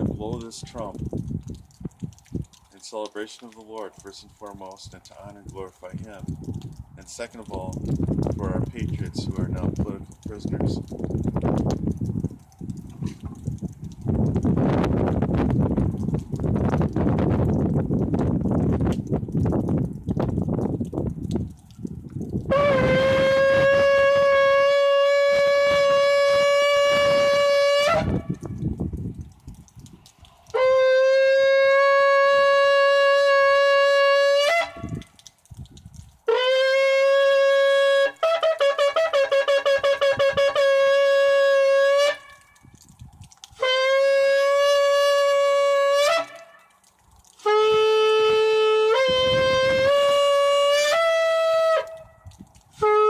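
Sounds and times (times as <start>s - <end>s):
shofar blasts: 22.4s - 28.6s, 30.5s - 35.1s, 36.3s - 42.6s, 43.6s - 46.8s, 47.4s - 52.2s, 52.8s - 53.0s.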